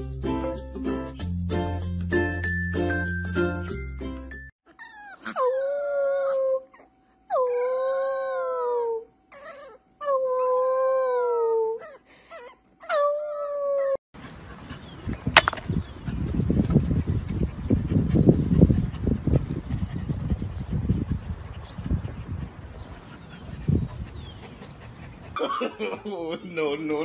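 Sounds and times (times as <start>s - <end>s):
puppy yelps: 4.7s - 10.7s
puppy howling: 4.7s - 14.0s.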